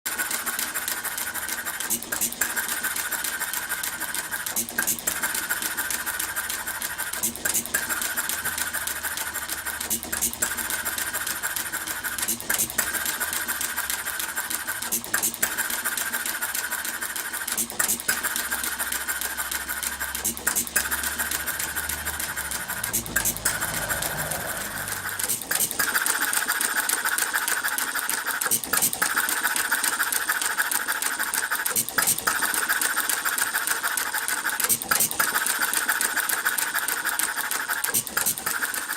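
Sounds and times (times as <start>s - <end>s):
mechanical clatter: 0.1s - 38.9s
gas engine firing reports: 20.0s - 25.6s.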